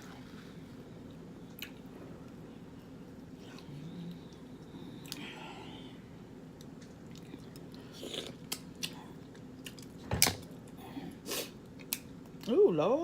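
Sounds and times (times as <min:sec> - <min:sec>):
wet chewing and smacking: 0:06.5 - 0:10.8.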